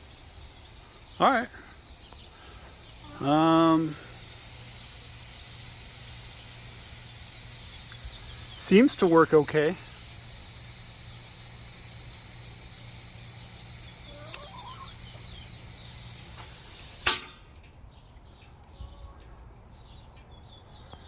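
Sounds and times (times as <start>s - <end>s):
faint bird chirps: 0.0s - 10.1s, 13.4s - 16.9s
compressed air hissing: 0.0s - 17.5s
sharp air blast: 0.0s - 17.5s.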